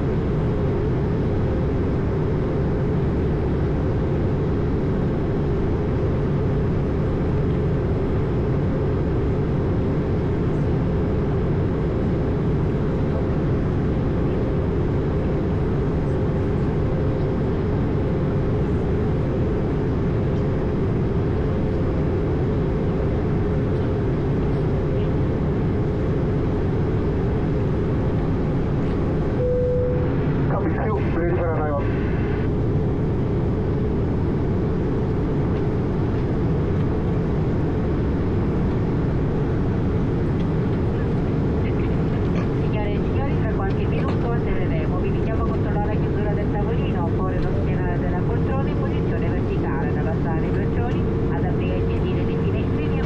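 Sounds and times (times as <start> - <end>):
jet engines droning: 0.0 - 53.0
thin steady hum: 23.8 - 32.6.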